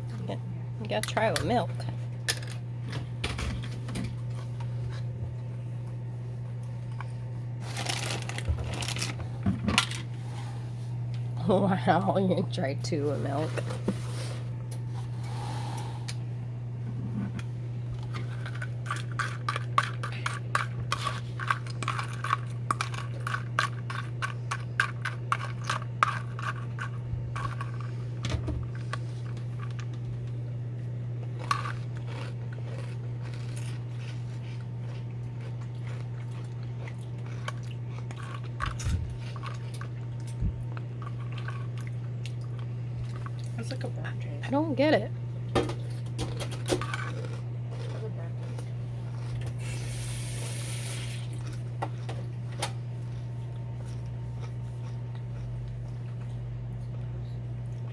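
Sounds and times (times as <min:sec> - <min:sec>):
steady low hum: 0:00.0 - 0:57.9
cereal being chewed: 0:18.0 - 0:30.4, 0:31.2 - 0:43.6, 0:46.8 - 0:50.1, 0:51.1 - 0:57.9.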